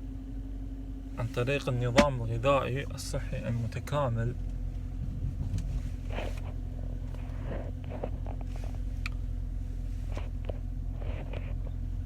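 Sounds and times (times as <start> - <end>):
steady low hum: 0.0 - 12.0
faint scrapes and clicks: 9.9 - 11.8.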